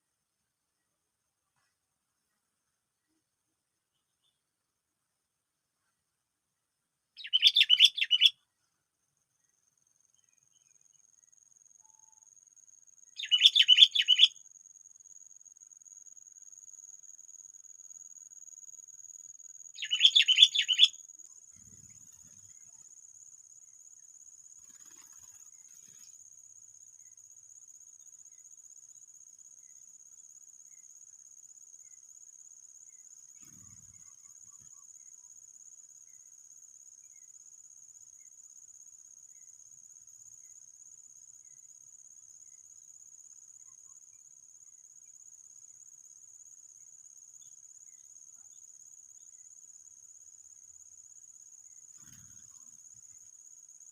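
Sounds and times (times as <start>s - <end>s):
bird chattering calls: 7.2s - 8.3s, 13.2s - 14.3s, 19.8s - 20.9s
high-pitched insect trill: 10.1s - 53.9s.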